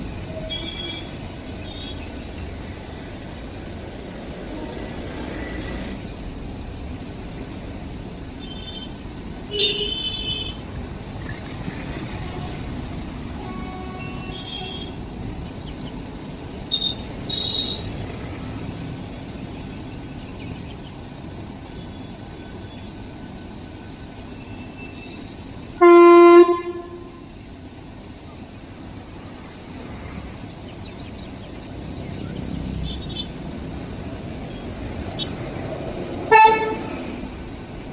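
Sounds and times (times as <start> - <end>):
loud horn blowing: 0.2 - 2.0, 9.5 - 10.6, 12.1 - 12.7, 13.4 - 15.0, 25.8 - 27.2, 36.3 - 37.0.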